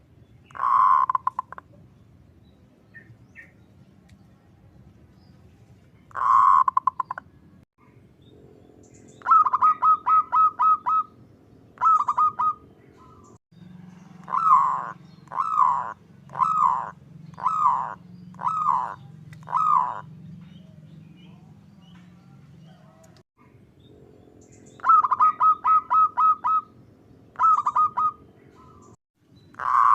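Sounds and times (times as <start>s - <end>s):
dove cooing: 0.5s - 1.6s, 6.1s - 7.2s, 9.2s - 11.2s, 11.8s - 13.3s, 14.0s - 23.2s, 24.8s - 26.7s, 27.4s - 28.9s, 29.6s - 29.9s.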